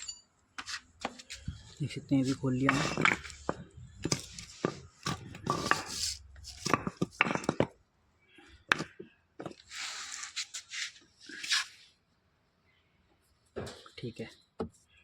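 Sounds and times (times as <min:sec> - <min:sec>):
tools knocking and clicking: 0:02.6 - 0:07.8.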